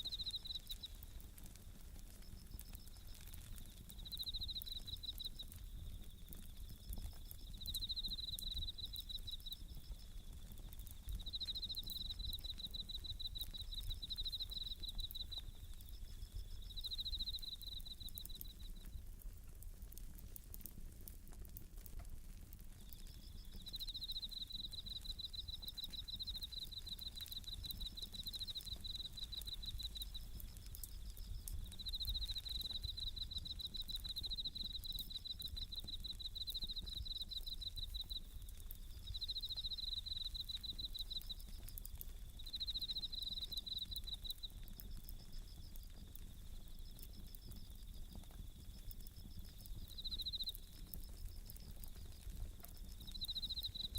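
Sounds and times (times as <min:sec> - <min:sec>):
crickets trilling: 0:00.0 - 0:53.9
wood fire crackling: 0:00.0 - 0:53.9.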